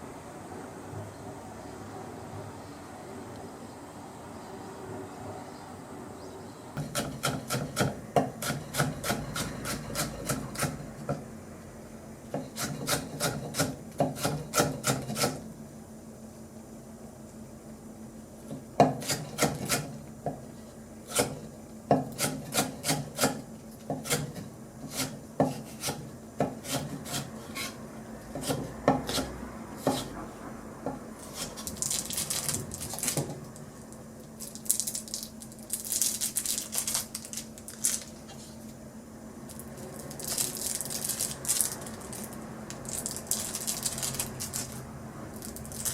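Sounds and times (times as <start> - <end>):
steady low hum: 0.0 - 45.9
blade grating food on wooden board: 6.8 - 10.8, 12.4 - 15.4, 21.1 - 21.4, 22.1 - 30.2.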